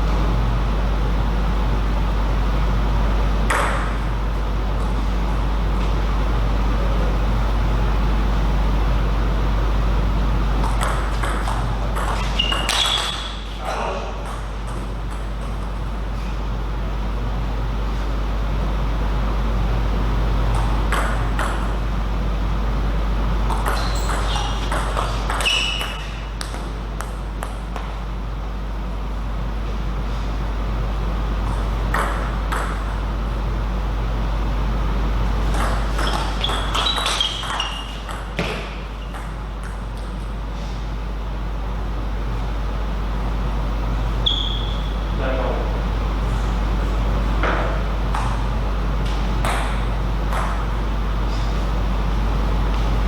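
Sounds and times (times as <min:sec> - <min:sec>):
constant low hum: 0:00.0 - 0:53.0
shoes squeaking on floor: 0:12.2 - 0:14.0, 0:23.7 - 0:26.3, 0:35.9 - 0:39.1, 0:44.2 - 0:45.0.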